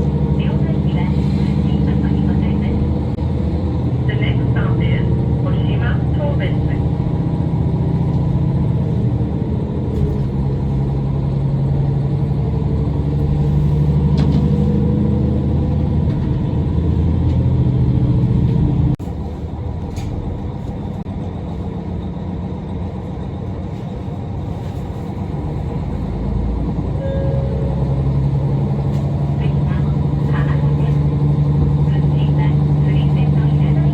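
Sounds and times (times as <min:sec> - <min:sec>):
rail rumble: 0:00.0 - 0:33.9
railcar engine drone: 0:00.0 - 0:33.9.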